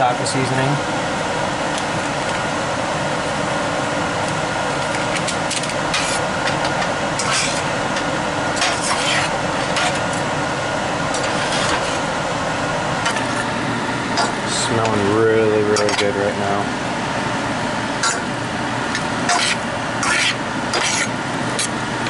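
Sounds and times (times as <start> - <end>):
utensil scraping a pan: 8.6 - 10.0.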